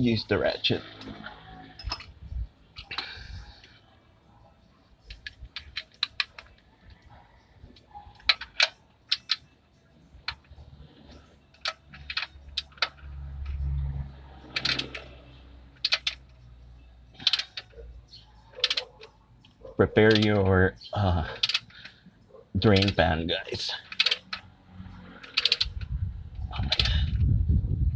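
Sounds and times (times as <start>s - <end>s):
socket ratchet clicks and metal knocks: 0.8s - 3.1s, 5.0s - 9.5s, 10.2s - 16.5s, 17.1s - 22.0s, 22.6s - 27.0s.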